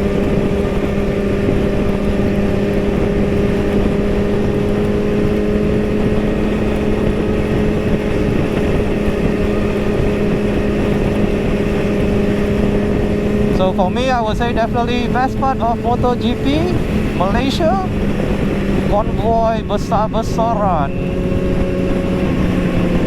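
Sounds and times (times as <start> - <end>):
motorcycle engine cruising: 0.0 - 23.0
road rush: 0.0 - 23.0
wind noise on microphone: 0.0 - 23.0.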